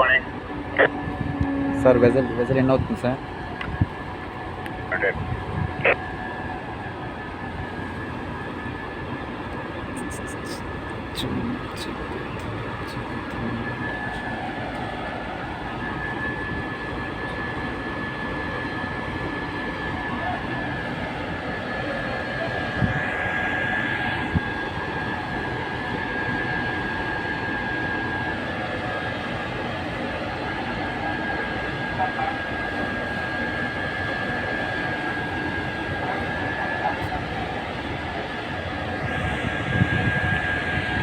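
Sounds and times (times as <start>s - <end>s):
engine drone: 0.0s - 41.0s
thin high whine: 9.8s - 17.0s.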